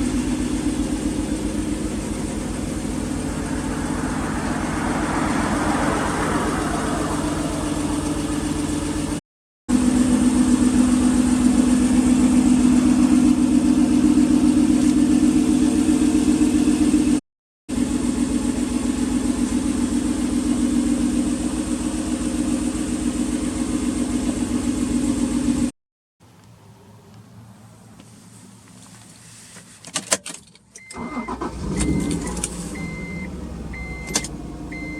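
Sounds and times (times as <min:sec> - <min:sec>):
car engine running steadily: 0:00.0 - 0:25.7, 0:26.3 - 0:34.9.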